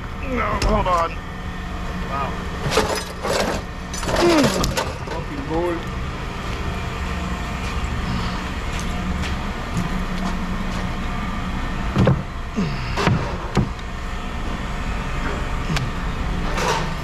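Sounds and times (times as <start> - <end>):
low engine hum: 0.0 - 17.0
scrap metal clanking: 2.6 - 5.4.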